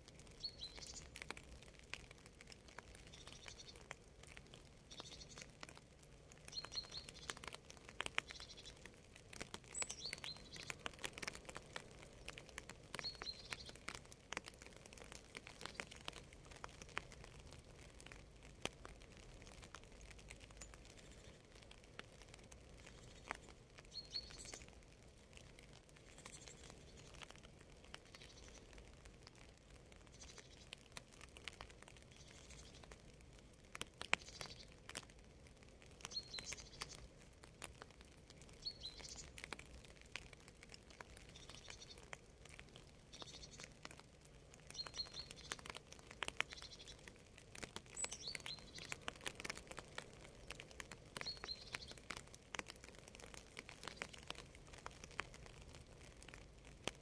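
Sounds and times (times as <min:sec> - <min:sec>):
light rain: 0:00.0 - 0:57.0
raindrops ticking: 0:00.0 - 0:57.0
small bird chirping: 0:00.3 - 0:01.3, 0:02.8 - 0:05.7, 0:06.4 - 0:16.2, 0:22.8 - 0:24.8, 0:26.0 - 0:27.4, 0:28.0 - 0:28.8, 0:30.0 - 0:30.8, 0:32.0 - 0:33.0, 0:34.1 - 0:34.8, 0:36.0 - 0:37.1, 0:38.5 - 0:39.5, 0:40.9 - 0:42.1, 0:43.1 - 0:43.8, 0:44.7 - 0:47.1, 0:47.8 - 0:49.6, 0:51.2 - 0:52.2.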